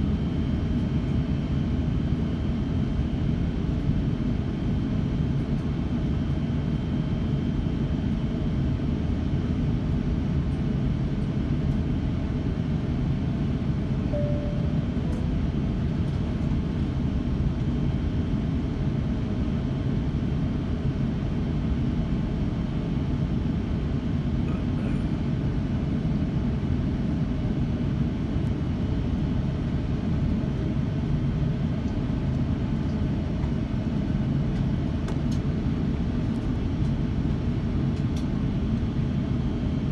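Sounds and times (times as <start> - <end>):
faint steady high tone: 14.1 - 15.5
airliner cabin rumble: 24.2 - 26.4.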